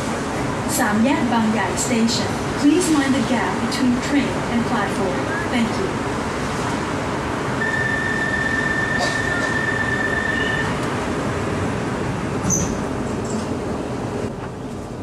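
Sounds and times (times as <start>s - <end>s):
train cabin noise: 0.0s - 15.0s
steady high tone: 7.6s - 10.8s.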